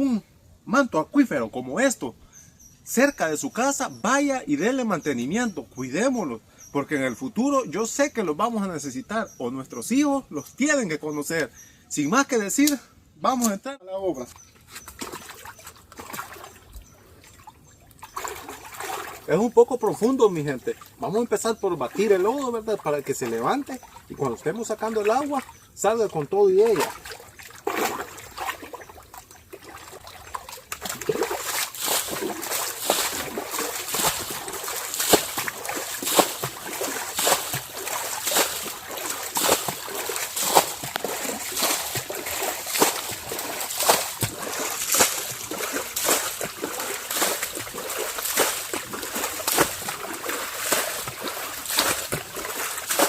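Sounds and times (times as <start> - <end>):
water splashing and sloshing: 14.2 - 53.0.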